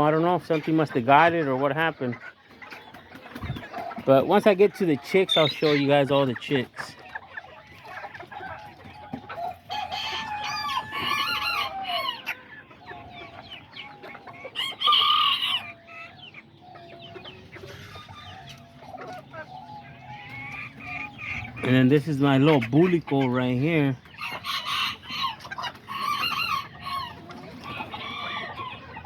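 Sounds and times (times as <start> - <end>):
hens clucking: 0.0 - 29.0
rooster crowing: 9.7 - 12.3.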